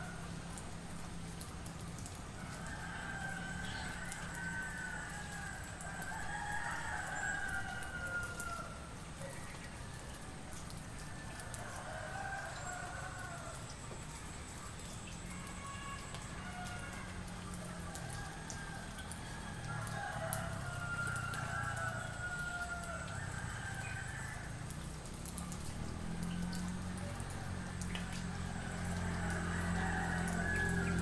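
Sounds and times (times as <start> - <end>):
roosters crowing: 2.4 - 8.9, 11.2 - 13.8, 15.6 - 24.7, 26.0 - 31.0.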